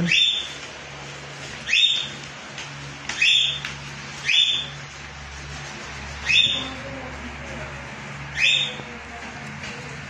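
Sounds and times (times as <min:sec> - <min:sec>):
bird chirping: 0:00.0 - 0:00.5, 0:01.6 - 0:02.2, 0:03.2 - 0:03.6, 0:04.2 - 0:04.8, 0:06.2 - 0:06.7, 0:08.3 - 0:08.8.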